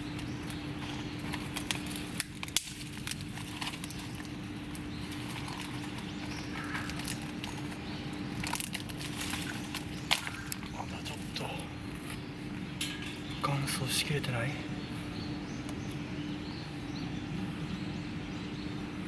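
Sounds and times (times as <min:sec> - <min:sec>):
kindling crackling and snapping: 0:00.0 - 0:13.6
low steady fire rumble: 0:00.0 - 0:19.0.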